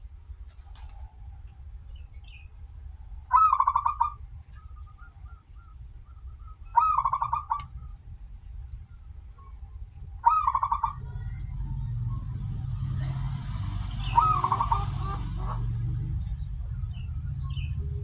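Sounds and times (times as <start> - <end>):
low background rumble: 0.0 - 18.0
dove cooing song: 3.3 - 8.1, 9.4 - 18.0.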